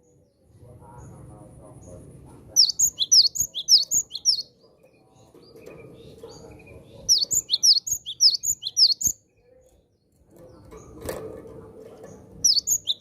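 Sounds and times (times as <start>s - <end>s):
bird singing high whistled notes: 2.6s - 4.5s, 7.1s - 9.2s, 12.5s - 13.0s.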